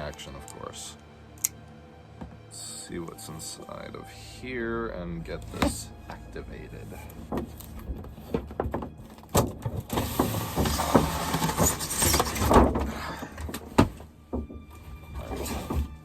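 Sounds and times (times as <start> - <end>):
cardboard scraping and rustling: 6.8 - 16.0.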